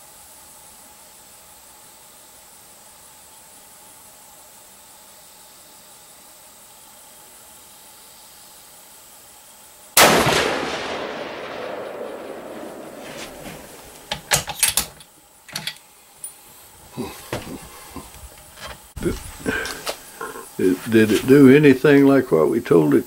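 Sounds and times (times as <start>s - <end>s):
rifle shot with echo: 10.0s - 14.3s
sharp metallic clicks: 13.7s - 16.4s.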